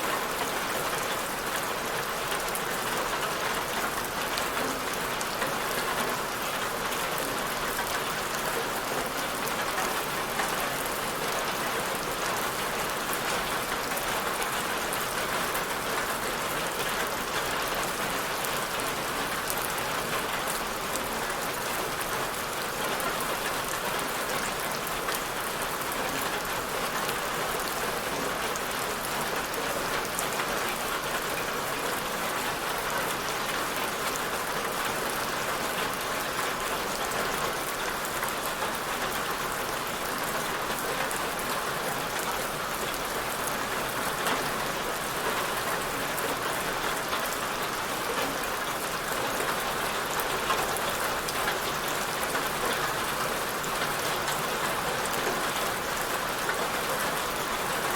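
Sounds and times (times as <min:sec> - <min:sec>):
steady rainfall: 0:00.0 - 0:57.9.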